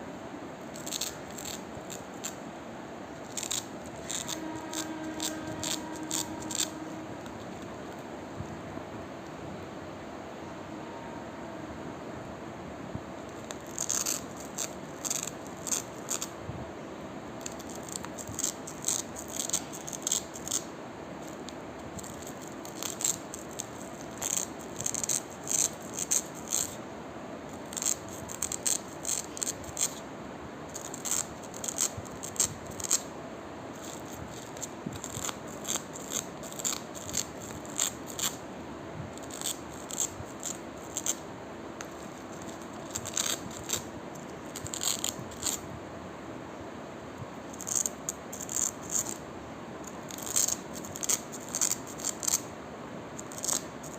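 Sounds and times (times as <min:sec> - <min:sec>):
velcro ripping apart: 0:44.5 - 0:45.6, 0:50.1 - 0:52.4.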